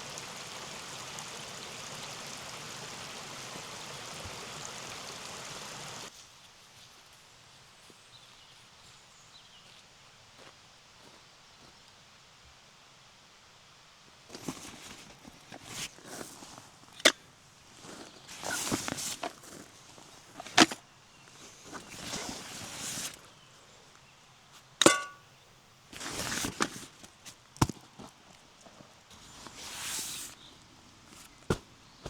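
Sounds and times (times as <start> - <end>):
rustling of gear being handled: 14.3 - 17.1, 17.7 - 23.3, 26.0 - 30.4.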